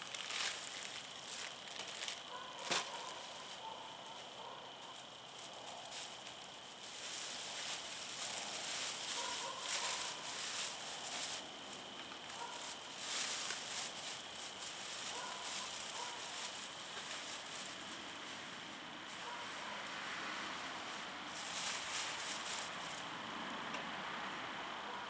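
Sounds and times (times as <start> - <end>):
wood fire crackling and hissing: 0.0 - 24.2.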